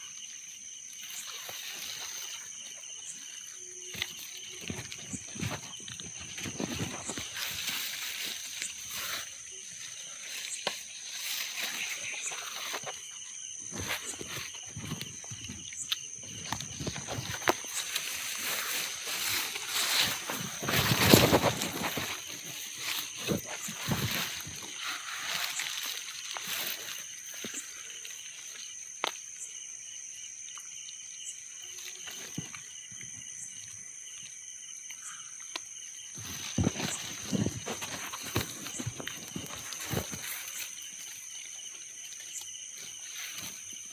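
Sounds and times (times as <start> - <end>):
high-pitched insect drone: 0.0 - 43.9
rustling: 0.9 - 28.2, 36.1 - 43.9.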